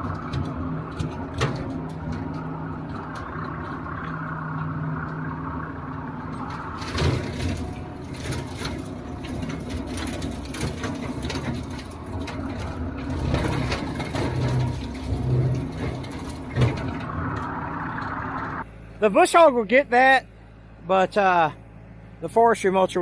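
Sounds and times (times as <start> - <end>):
sharp knocks and clatters: 0.0 - 4.2, 6.4 - 18.6
tractor diesel engine running: 0.0 - 23.0.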